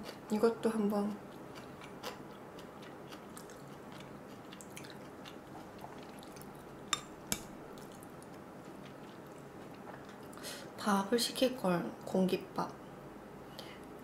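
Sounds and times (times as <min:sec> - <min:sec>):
chewing noodles: 0:01.2 - 0:10.4.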